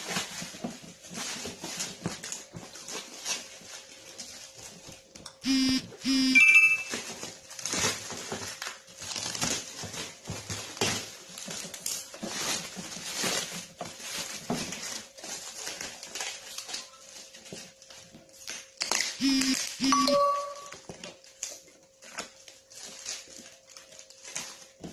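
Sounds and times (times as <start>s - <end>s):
cardboard and plastic crinkling: 0.0s - 6.2s, 6.8s - 24.9s
brief high-pitched sound: 5.5s - 7.0s, 19.2s - 20.8s.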